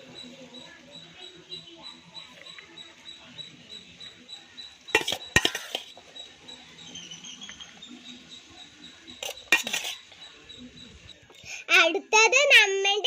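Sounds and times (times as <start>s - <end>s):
utensils clinking against a pot: 3.2s - 8.0s, 9.1s - 11.1s.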